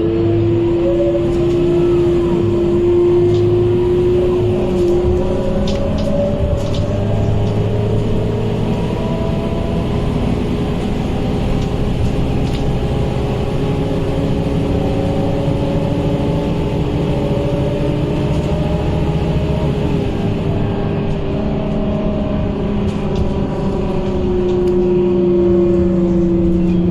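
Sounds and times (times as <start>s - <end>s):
bus diesel engine running: 0.0s - 26.9s
radiator cooling fan hum: 0.6s - 20.6s.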